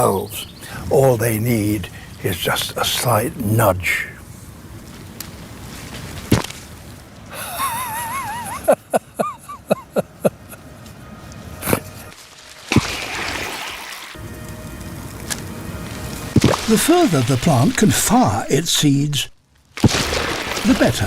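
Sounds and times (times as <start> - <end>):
wet spray burst: 12.6 - 14.2, 16.4 - 18.5
seed pods popping: 16.3 - 18.4, 19.8 - 21.0.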